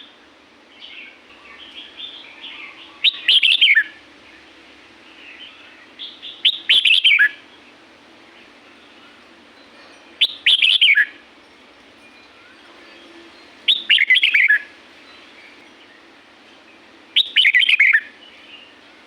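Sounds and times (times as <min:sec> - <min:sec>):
bird warbling song: 0:00.7 - 0:04.5, 0:05.1 - 0:07.7, 0:10.2 - 0:11.2, 0:12.9 - 0:16.1, 0:16.7 - 0:18.8.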